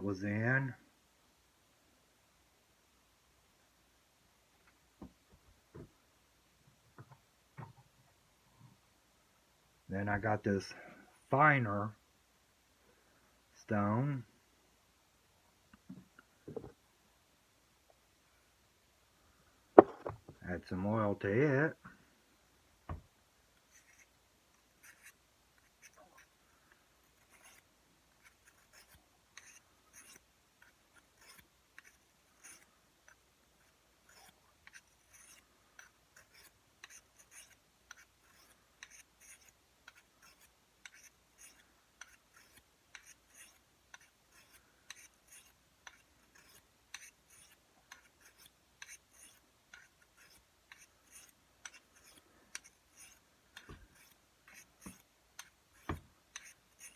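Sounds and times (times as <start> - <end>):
blade scraping sharpening stone: 23.7 - 24.1, 24.8 - 26.3, 27.2 - 27.6, 28.2 - 56.9.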